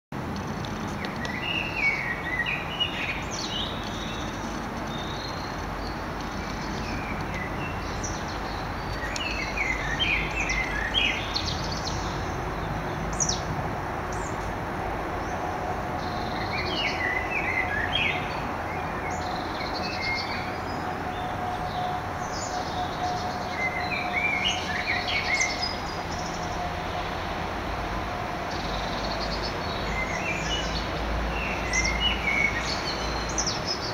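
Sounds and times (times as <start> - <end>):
outdoor background noise: 0.1 - 33.9
songbird chirping: 0.4 - 13.5, 15.1 - 33.9.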